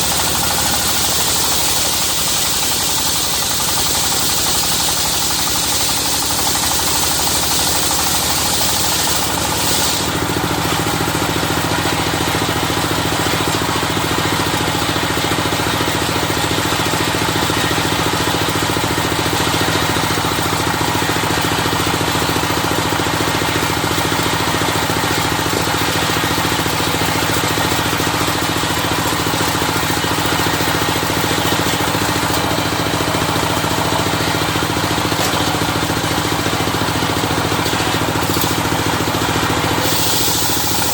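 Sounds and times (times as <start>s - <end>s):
circular sawmill ripping a log: 0.0s - 40.9s
high hiss: 39.8s - 40.9s.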